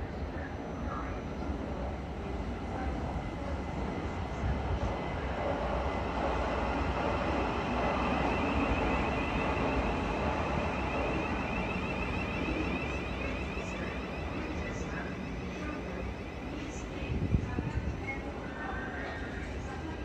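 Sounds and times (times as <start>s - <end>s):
train rumbling: 0.0s - 20.0s
wavering high whine: 6.8s - 17.3s.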